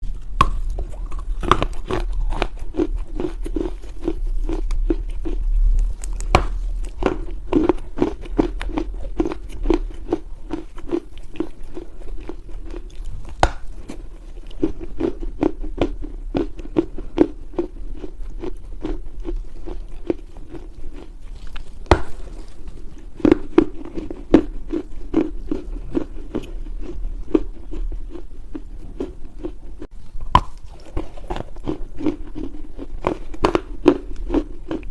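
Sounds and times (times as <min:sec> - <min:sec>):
person chewing dry clay: 0:00.0 - 0:34.9.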